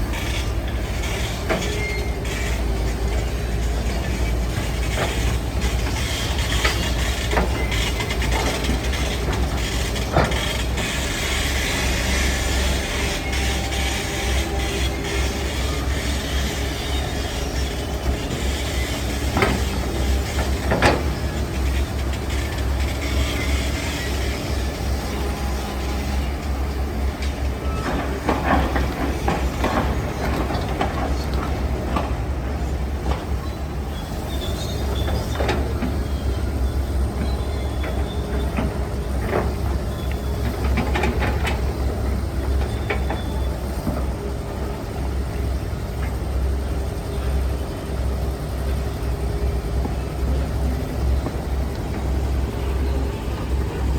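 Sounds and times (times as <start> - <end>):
diesel machine rumbling: 0.0 - 53.9
clanks and knocks: 18.3 - 23.3, 27.2 - 32.2.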